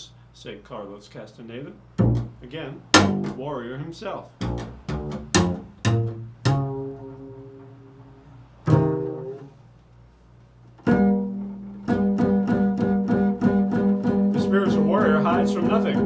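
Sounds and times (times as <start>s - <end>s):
plucked string instrument: 2.0s - 3.4s, 4.4s - 9.6s, 10.8s - 16.0s.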